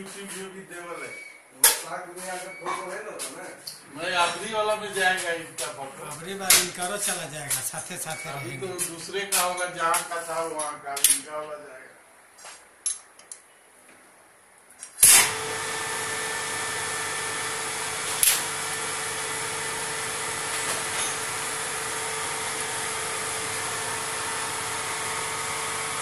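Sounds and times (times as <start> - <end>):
workshop machine motor humming: 4.4 - 9.1, 15.2 - 26.0.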